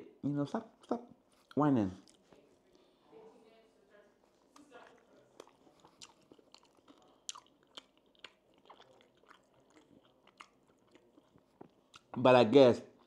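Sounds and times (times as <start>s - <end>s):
person chewing food: 0.8s - 2.4s, 4.4s - 12.2s.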